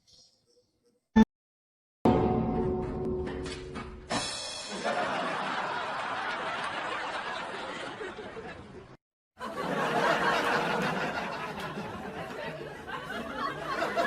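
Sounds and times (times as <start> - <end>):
people laughing and giggling: 4.7 - 14.0.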